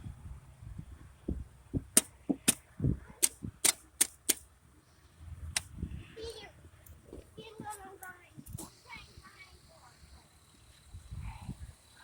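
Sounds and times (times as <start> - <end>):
sharp metallic clicks and taps: 1.7 - 2.6, 3.2 - 4.5.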